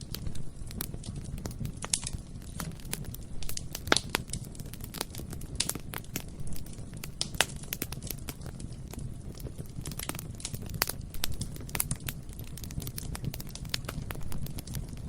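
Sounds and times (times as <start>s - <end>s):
burning wood crackling and popping: 0.0s - 15.0s
low rumble of flames: 0.0s - 15.0s.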